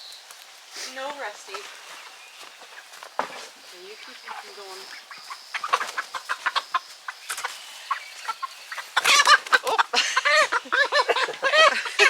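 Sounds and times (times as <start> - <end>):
chickens clucking: 0.7 - 12.0.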